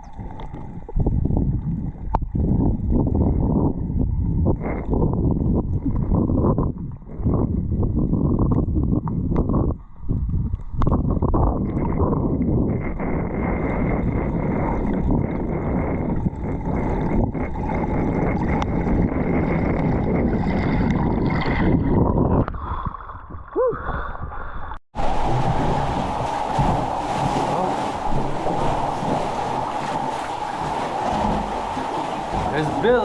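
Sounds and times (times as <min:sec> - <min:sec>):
water sloshing and gurgling: 0:00.0 - 0:33.0
wind and waves rushing: 0:24.9 - 0:33.0.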